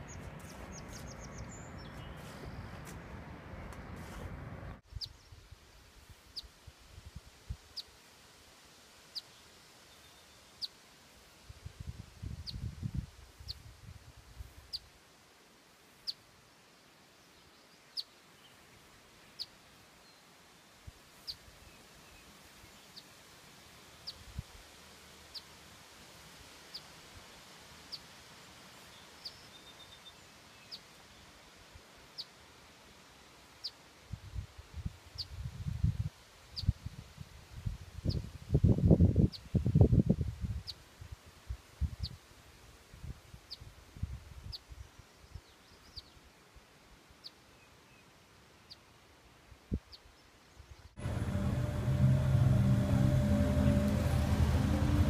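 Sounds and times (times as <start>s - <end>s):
bird chirping: 0.0s - 3.0s
outdoor background noise: 0.0s - 55.0s
low rumble: 51.0s - 55.0s.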